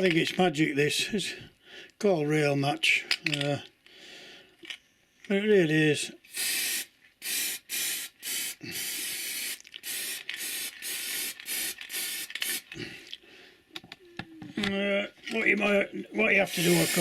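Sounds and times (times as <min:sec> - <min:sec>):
aerosol paint can spraying: 0:06.3 - 0:12.8, 0:16.4 - 0:17.0.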